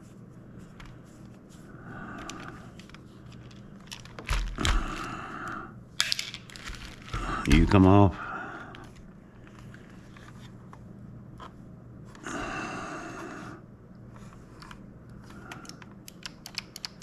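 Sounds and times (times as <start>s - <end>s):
steady low hum: 0.0s - 17.0s
plastic parts clicking and knocking: 2.2s - 4.9s, 15.5s - 17.0s.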